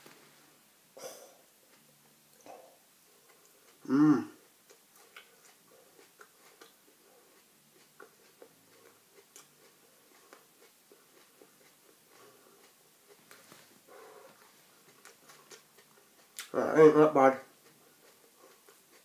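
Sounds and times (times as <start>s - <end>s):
wet mouth clicks of chewing: 1.7s - 3.8s, 4.4s - 13.4s, 14.3s - 16.6s, 17.5s - 19.0s.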